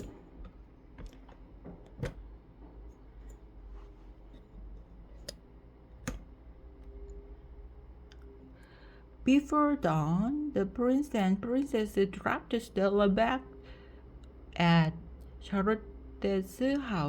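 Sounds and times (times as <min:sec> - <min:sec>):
faint clicks and taps: 0:00.0 - 0:07.2
low steady hum: 0:00.0 - 0:17.0.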